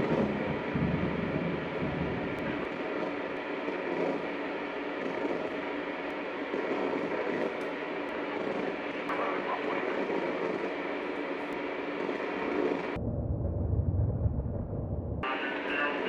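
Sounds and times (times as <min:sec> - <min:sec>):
low rumble: 0:00.0 - 0:03.3, 0:13.0 - 0:15.3
radio static hiss: 0:00.0 - 0:13.0, 0:15.2 - 0:16.0
static crackles and pops: 0:00.0 - 0:16.0.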